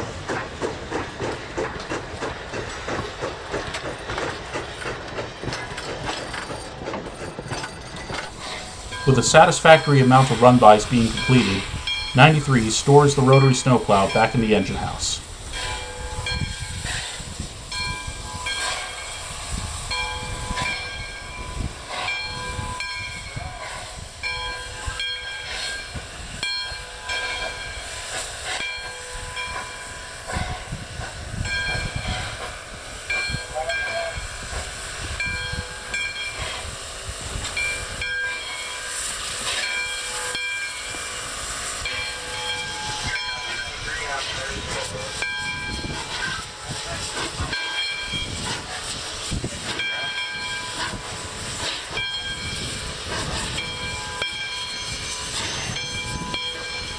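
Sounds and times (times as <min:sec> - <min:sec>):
steam locomotive hiss and chuffs: 0:00.0 - 0:56.9
locomotive bell ringing: 0:04.4 - 0:56.9.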